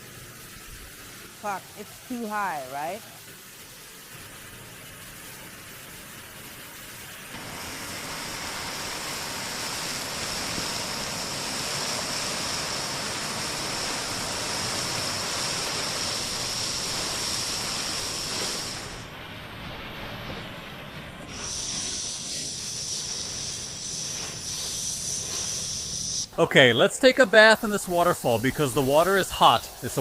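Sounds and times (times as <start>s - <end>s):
waterfall rushing: 7.2s - 19.1s, 26.7s - 30.0s.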